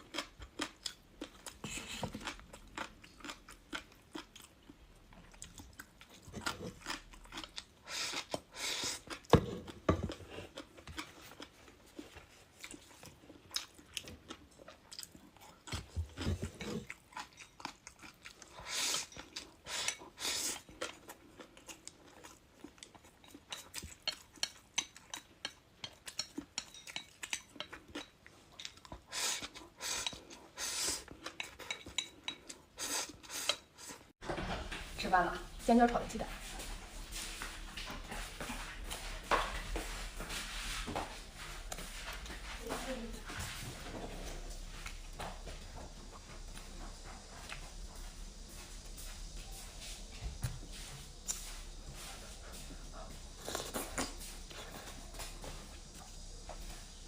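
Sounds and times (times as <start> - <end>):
person chewing crisp food: 0.0 - 34.1, 51.1 - 57.0.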